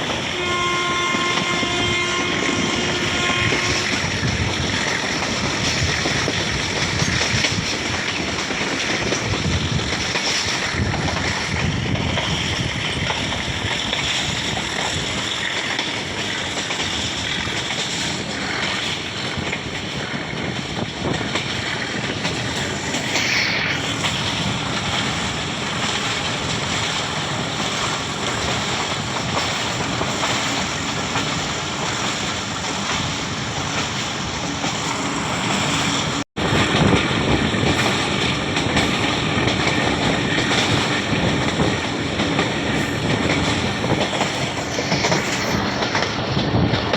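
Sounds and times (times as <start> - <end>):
passenger train running: 0.0 - 46.9
wind buffeting microphone: 0.0 - 46.9.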